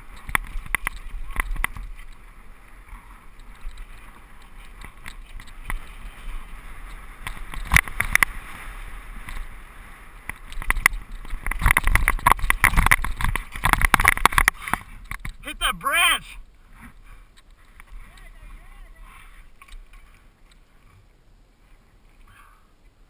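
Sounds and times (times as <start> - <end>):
tyre noise on dirt: 0.0 - 16.0
bike frame rattling: 10.3 - 15.4.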